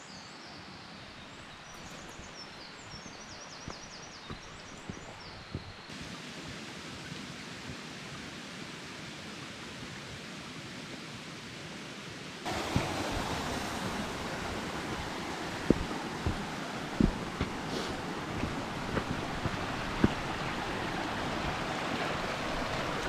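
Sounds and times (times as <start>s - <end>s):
mountain stream rushing: 1.4s - 23.0s
footsteps on stony ground: 1.7s - 5.9s, 13.8s - 21.7s.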